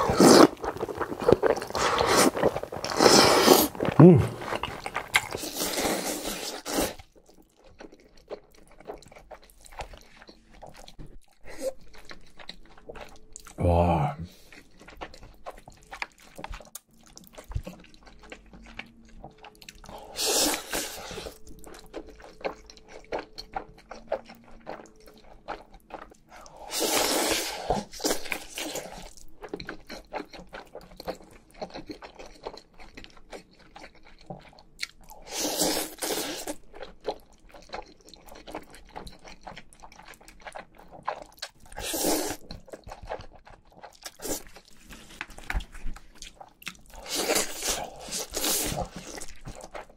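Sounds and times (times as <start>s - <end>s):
slurping noodles: 0.0s - 7.0s, 19.9s - 21.4s, 26.4s - 29.1s, 35.1s - 36.6s, 41.7s - 42.4s, 46.9s - 49.3s
wet chewing and mouth clicks: 0.0s - 13.6s, 14.3s - 49.9s.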